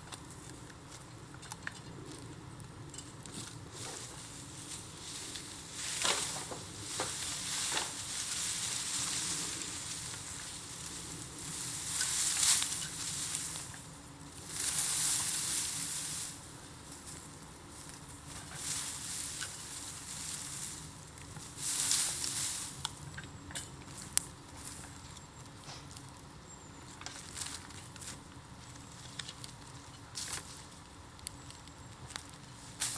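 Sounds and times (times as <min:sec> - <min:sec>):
bonfire hissing and crackling: 0:02.1 - 0:26.3.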